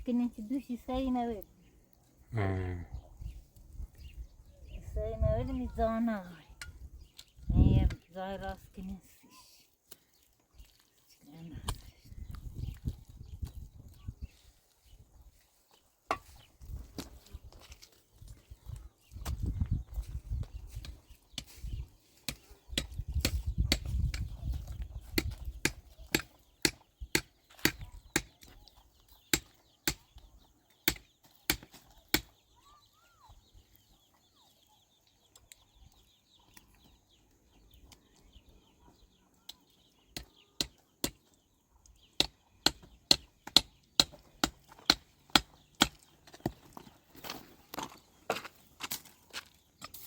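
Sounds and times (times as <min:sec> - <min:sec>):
hand tool striking: 0:16.1 - 0:16.4
faint chirp: 0:27.8 - 0:42.9.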